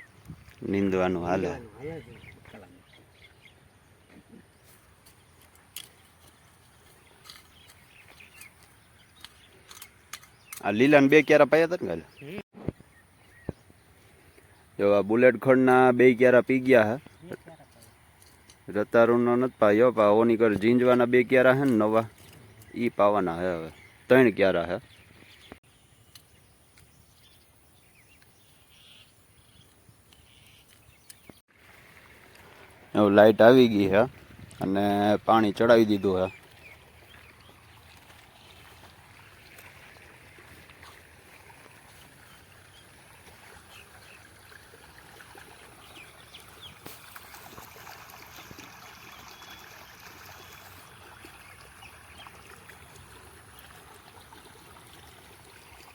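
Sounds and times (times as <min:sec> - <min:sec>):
bird chirps: 0:24.8 - 0:31.4.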